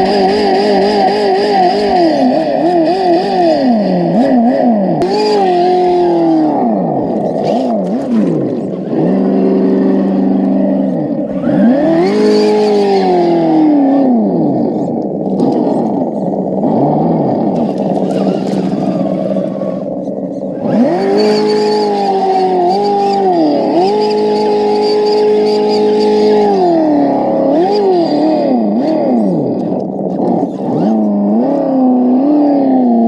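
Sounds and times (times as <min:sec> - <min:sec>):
simulated truck engine revving: 0:00.0 - 0:33.0.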